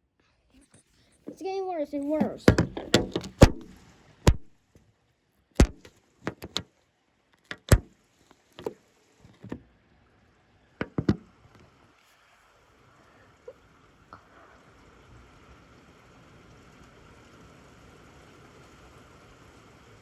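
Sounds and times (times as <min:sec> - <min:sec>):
sharp knocks and taps: 0:02.1 - 0:03.7, 0:05.6 - 0:06.6, 0:07.5 - 0:07.9, 0:08.6 - 0:09.6, 0:10.8 - 0:11.2.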